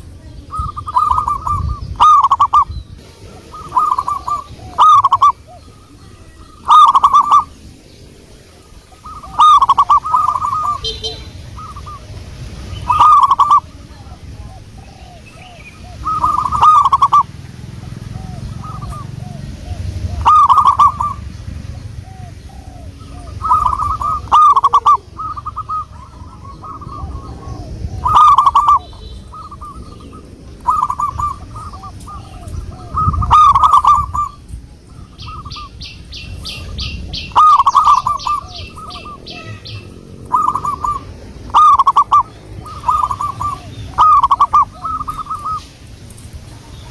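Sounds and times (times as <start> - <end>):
doves cooing: 0.0 - 46.9.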